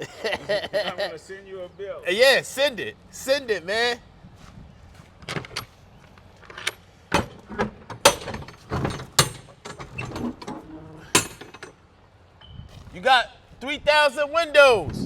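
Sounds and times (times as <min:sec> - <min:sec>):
cargo knocks and clunks: 0:06.4 - 0:11.8.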